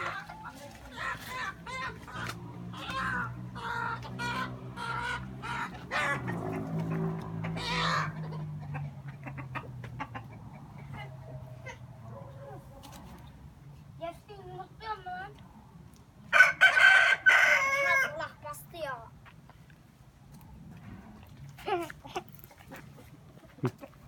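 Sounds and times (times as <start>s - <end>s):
chickens clucking: 0.0s - 13.3s, 22.0s - 24.0s.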